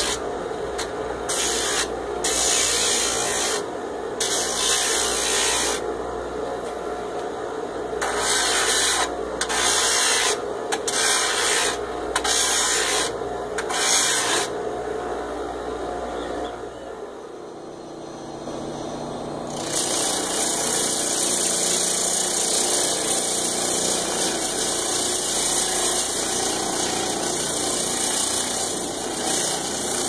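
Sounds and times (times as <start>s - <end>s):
wood rasping on sanding disc: 1.3s - 3.6s, 4.2s - 5.8s, 8.0s - 14.5s, 19.6s - 30.0s.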